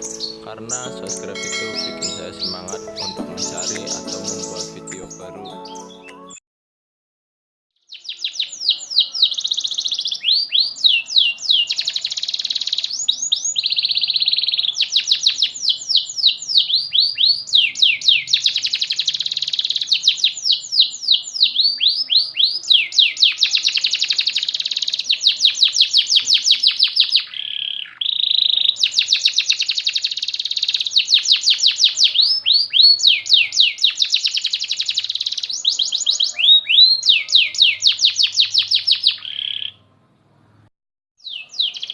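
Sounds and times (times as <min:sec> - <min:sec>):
canary singing: 0:00.0 - 0:06.4, 0:07.8 - 0:40.0, 0:41.2 - 0:41.9.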